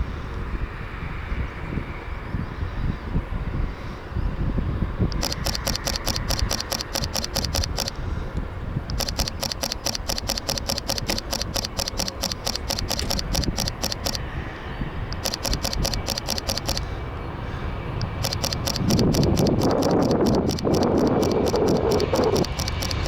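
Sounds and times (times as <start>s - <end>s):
camera shutter clicking rapidly: 5.1s - 8.0s, 8.9s - 14.2s, 15.1s - 16.9s, 18.0s - 23.0s.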